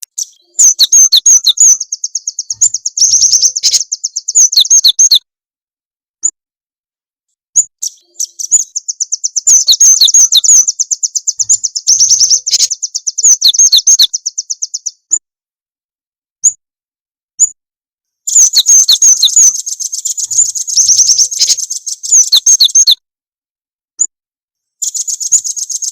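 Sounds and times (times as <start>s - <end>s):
songbird chattering trills: 0.0s - 5.2s, 7.8s - 15.0s, 18.3s - 23.0s, 24.8s - 25.9s
bird chirps: 0.0s - 5.3s, 7.6s - 15.2s, 18.3s - 23.0s, 24.8s - 25.9s.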